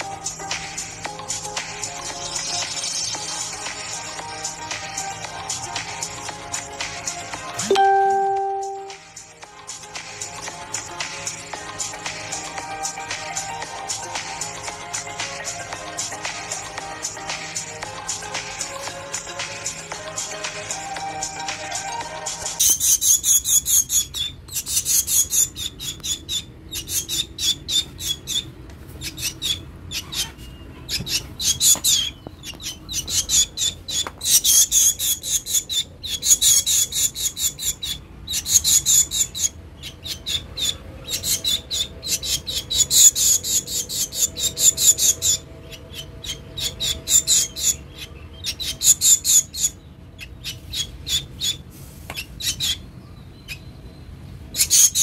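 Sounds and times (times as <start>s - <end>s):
bird harsh rasping calls: 22.5s - 53.6s, 54.5s - 55.0s.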